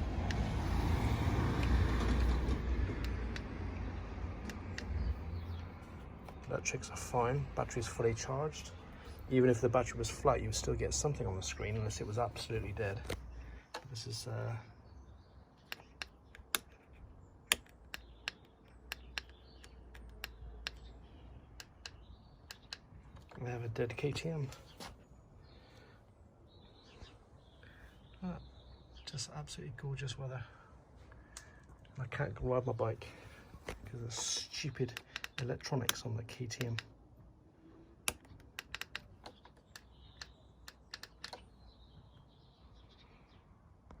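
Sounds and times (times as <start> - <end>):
switch buttons clicking: 21.6 - 23.4, 33.7 - 37.0, 38.0 - 41.5.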